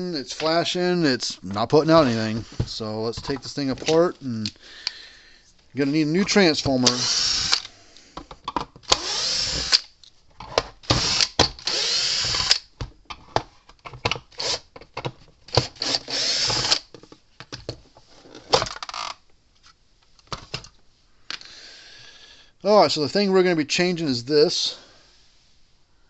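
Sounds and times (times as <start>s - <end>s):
power drill running in bursts: 6.8s - 7.6s, 8.9s - 9.8s, 10.9s - 12.6s, 15.7s - 16.8s.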